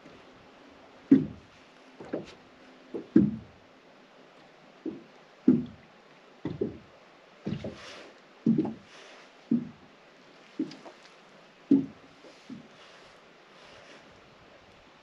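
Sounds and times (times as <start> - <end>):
dull knocks: 1.1 - 2.4, 3.0 - 3.6, 4.9 - 6.9, 7.5 - 7.8, 8.4 - 8.9, 9.5 - 9.8, 10.6 - 11.0, 11.7 - 12.7.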